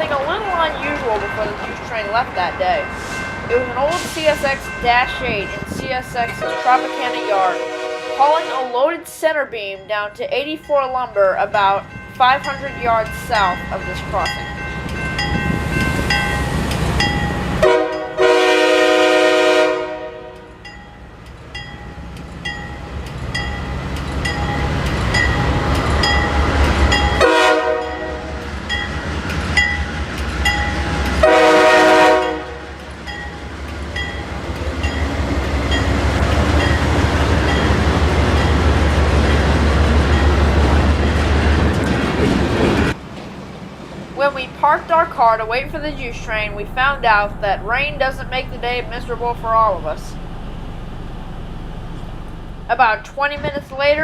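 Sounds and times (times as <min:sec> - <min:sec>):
train wheels on rails: 0:00.0 - 0:09.7, 0:10.3 - 0:54.0
crossing bell pinging: 0:00.0 - 0:41.9, 0:44.2 - 0:54.0
locomotive engine rumble: 0:00.0 - 0:54.0
locomotive horn blasts: 0:06.3 - 0:08.9, 0:17.6 - 0:20.7, 0:27.2 - 0:28.4, 0:31.2 - 0:32.8.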